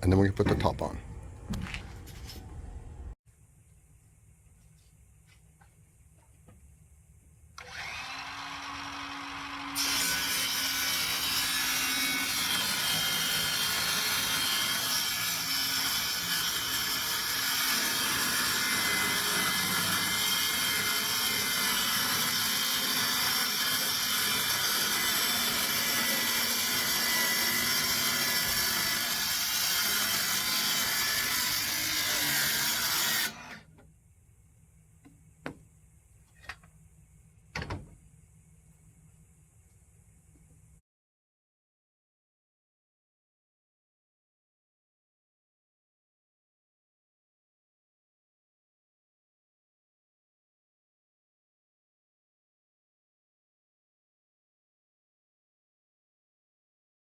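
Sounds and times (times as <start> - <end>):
low hum: 1.0 - 4.7
electric saw cutting wood: 7.6 - 33.7.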